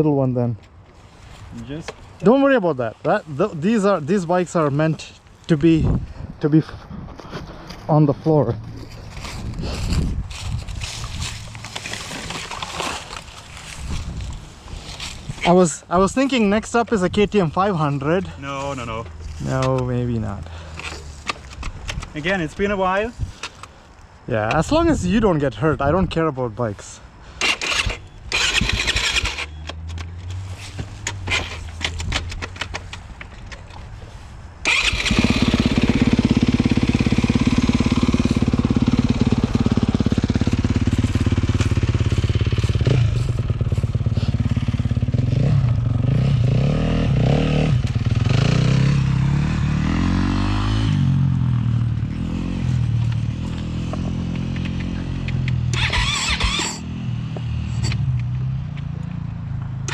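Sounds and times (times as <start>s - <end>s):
dirt bike engine revving: 27.4s - 29.6s, 34.6s - 58.0s
scattered clicks: 54.3s - 56.8s.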